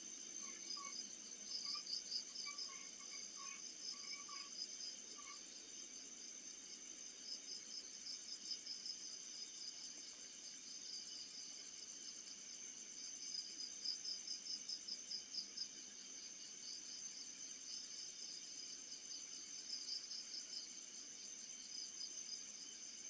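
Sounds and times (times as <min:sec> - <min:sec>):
constant high-pitched tone: 0:00.0 - 0:06.8
insects chirping: 0:00.1 - 0:23.0.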